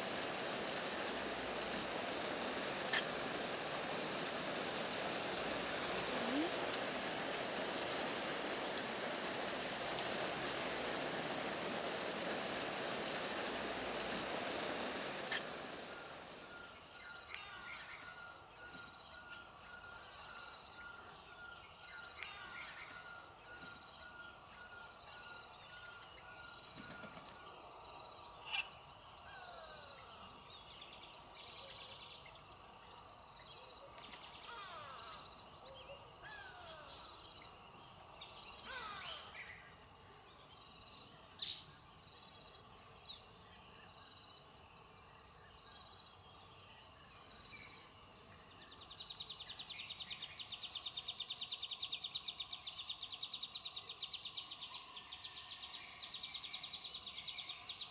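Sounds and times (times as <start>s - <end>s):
high-pitched hiss: 11.8s - 50.8s
wild birds calling: 13.1s - 32.3s, 33.4s - 39.9s.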